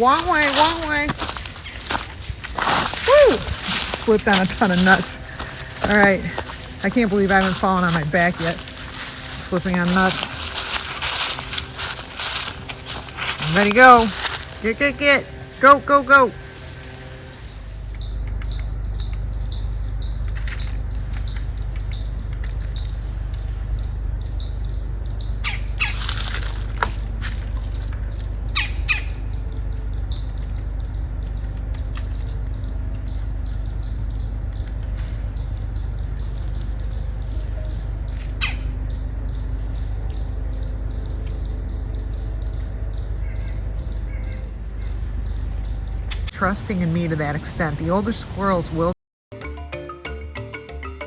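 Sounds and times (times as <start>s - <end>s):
steady low rumble: 0.0s - 49.0s
bird squawks and calls: 25.4s - 26.2s, 28.6s - 29.3s, 37.6s - 38.7s.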